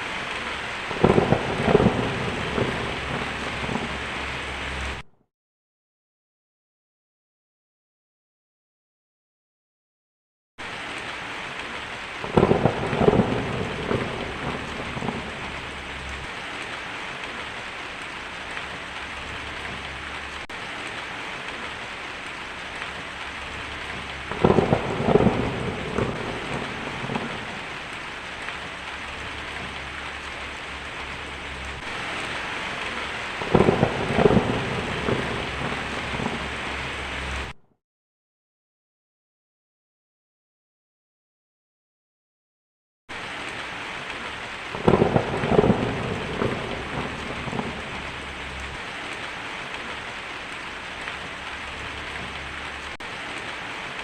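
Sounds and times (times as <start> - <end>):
heavy rain hissing: 0.0 - 5.0, 10.6 - 37.6, 43.1 - 54.0
thunder claps rumbling: 0.1 - 5.0, 12.1 - 37.6, 43.2 - 54.0.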